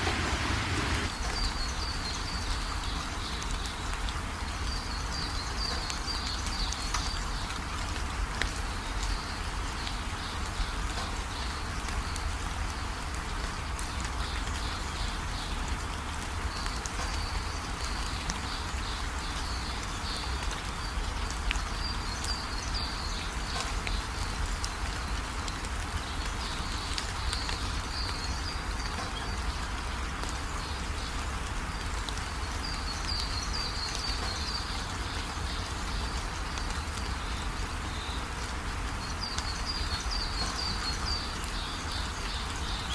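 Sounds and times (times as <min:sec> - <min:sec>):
low rumble: 0:00.0 - 0:01.1
steady rain falling: 0:00.0 - 0:42.9.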